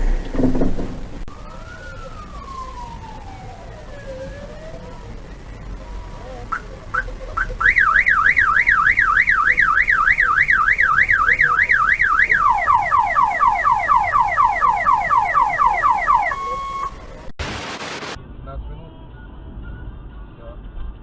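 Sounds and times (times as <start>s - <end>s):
car alarm rapid chirps: 6.5s - 17.0s
car alarm warbling: 6.5s - 17.0s.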